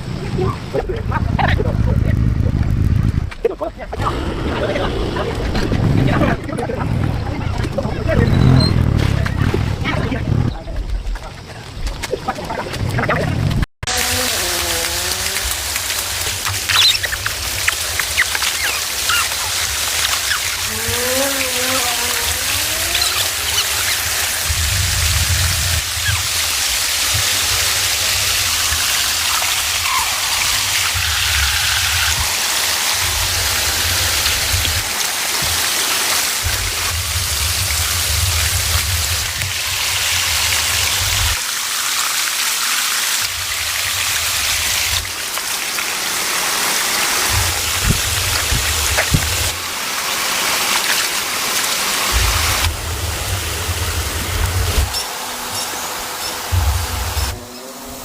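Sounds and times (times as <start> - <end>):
low rumble: 0.0 - 14.3, 20.6 - 26.3, 52.1 - 55.0
heavy rain falling: 0.0 - 57.4
rushing floodwater: 11.2 - 58.0.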